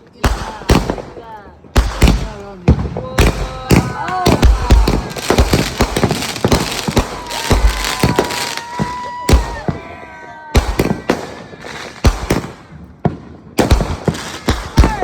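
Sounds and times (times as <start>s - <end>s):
fireworks bangs and cracks: 0.0s - 15.0s.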